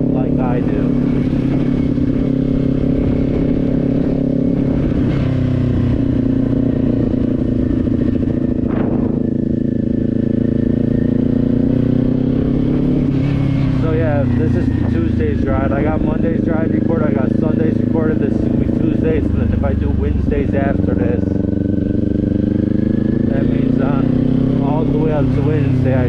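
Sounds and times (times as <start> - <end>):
rough wind noise: 0.0 - 17.6
motorcycle engine cruising: 0.0 - 26.0.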